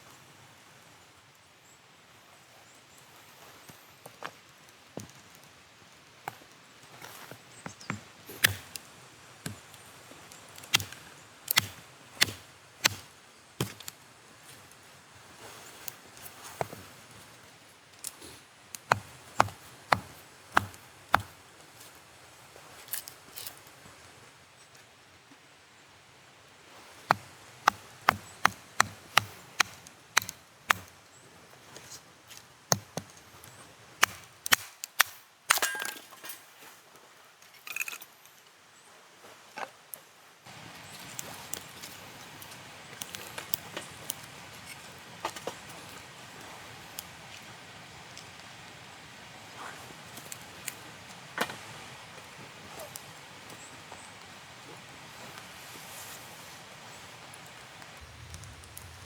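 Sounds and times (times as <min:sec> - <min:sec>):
blade chopping: 0:10.7 - 0:13.8, 0:18.9 - 0:21.3, 0:27.1 - 0:30.9.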